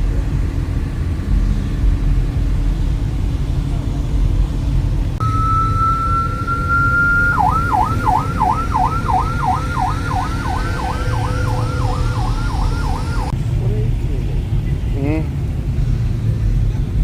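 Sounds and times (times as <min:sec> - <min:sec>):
low background rumble: 0:00.0 - 0:17.0
electronic siren: 0:05.2 - 0:13.3.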